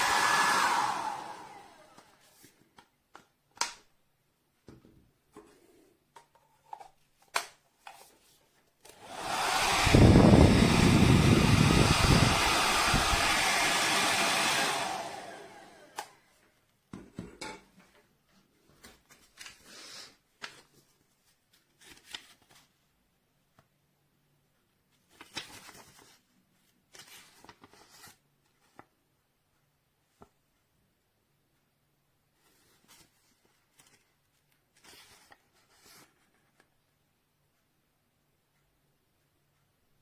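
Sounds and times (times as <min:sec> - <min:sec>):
hair dryer blowing: 0:00.0 - 0:02.2, 0:08.9 - 0:16.2
small clicks and handling noises: 0:04.7 - 0:09.0.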